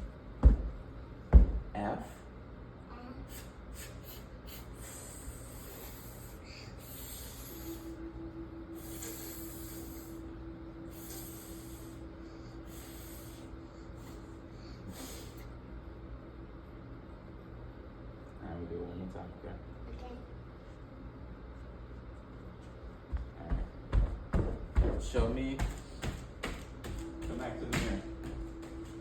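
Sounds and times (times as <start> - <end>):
person blowing hissing breaths: 3.3 - 8.0, 8.8 - 10.2, 10.8 - 15.5.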